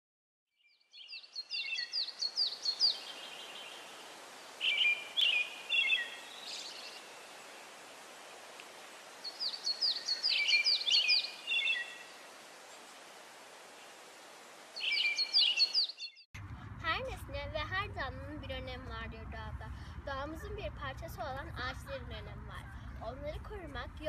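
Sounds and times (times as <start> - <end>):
songbird chirping: 0.6 - 16.3
outdoor ambience hiss: 0.9 - 24.0.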